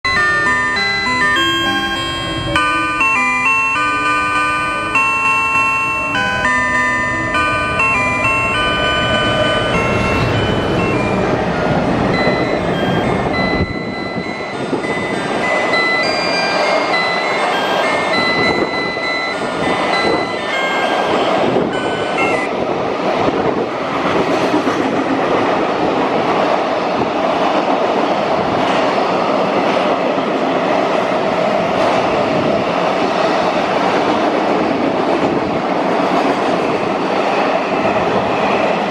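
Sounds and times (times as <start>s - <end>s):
short electronic melody: 0.1s - 22.5s
freight wagons rumbling on rails: 0.1s - 38.9s.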